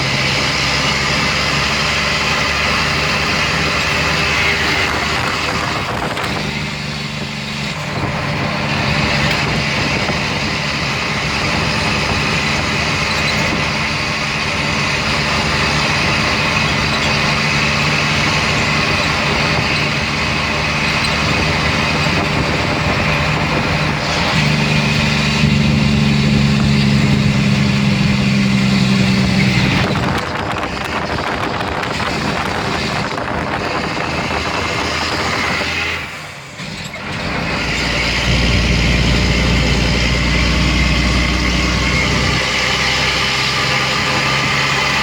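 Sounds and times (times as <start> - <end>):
truck diesel engine running: 0.0 - 45.0.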